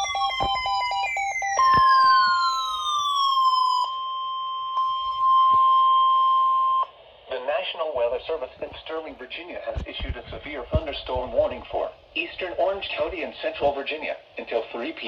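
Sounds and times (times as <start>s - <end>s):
falling electronic pitch sweeps: 0.0s - 5.6s
piercing single-pitch alarm beep: 0.0s - 6.9s
rapidly pulsing beep: 0.0s - 6.9s.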